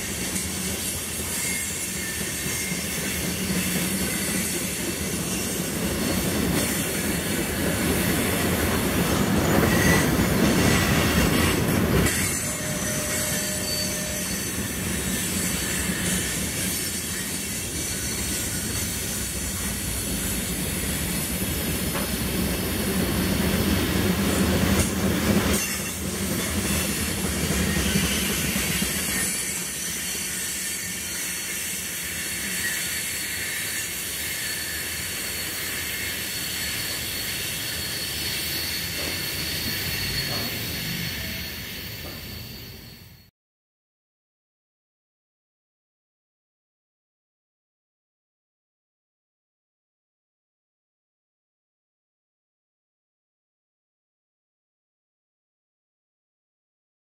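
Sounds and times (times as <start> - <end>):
train wheels rumbling on rail: 0.0 - 43.3
wheel squeals: 6.6 - 21.3, 25.5 - 43.3.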